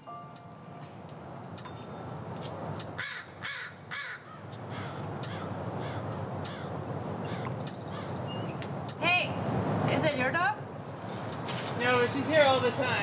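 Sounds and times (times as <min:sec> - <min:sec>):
bird calling: 0:03.0 - 0:08.6.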